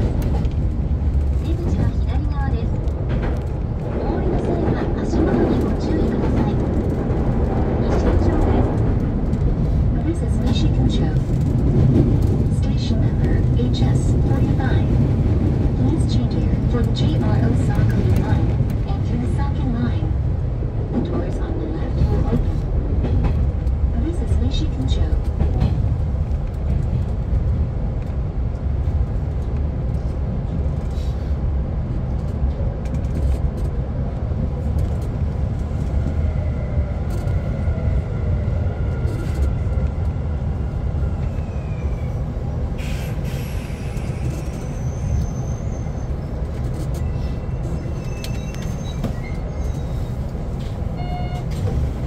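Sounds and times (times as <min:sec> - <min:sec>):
train low rumble: 0:00.0 - 0:52.0
short air hiss: 0:42.8 - 0:44.1.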